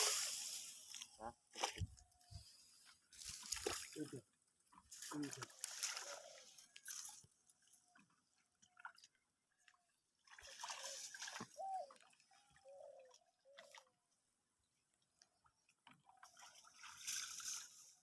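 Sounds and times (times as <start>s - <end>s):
water splashing and dripping: 3.1s - 14.1s, 15.0s - 18.0s.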